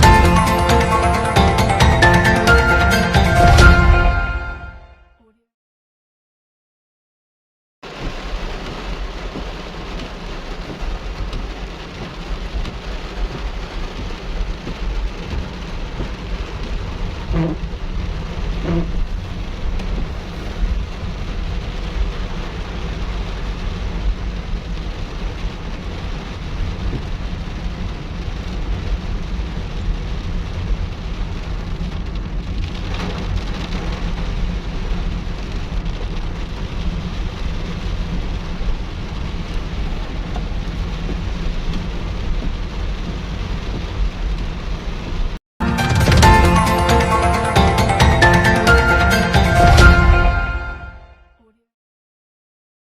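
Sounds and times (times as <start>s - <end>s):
heavy rain falling: 0.0s - 4.8s, 7.8s - 50.9s
low rumble: 16.1s - 27.0s.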